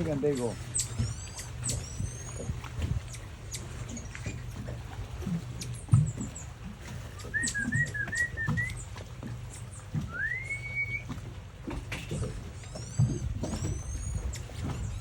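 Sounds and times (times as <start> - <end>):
person whistling: 7.2 - 8.8, 10.1 - 11.0.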